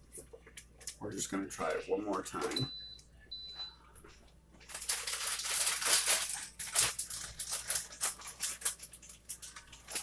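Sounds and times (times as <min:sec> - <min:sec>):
tortilla chips crunching: 0:04.7 - 0:10.0.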